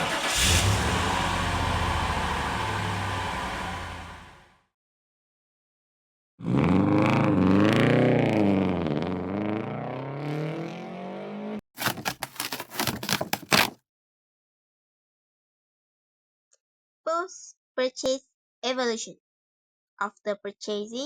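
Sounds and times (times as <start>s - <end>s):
engine revving: 0.0s - 4.6s, 6.4s - 11.6s.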